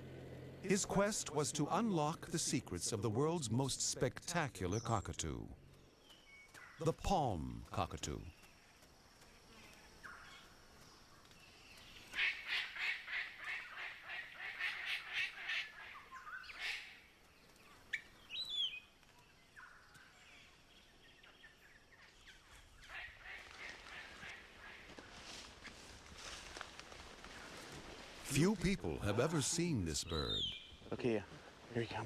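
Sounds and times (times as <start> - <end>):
birds harsh quacking calls: 12.1 - 17.0, 22.8 - 25.2.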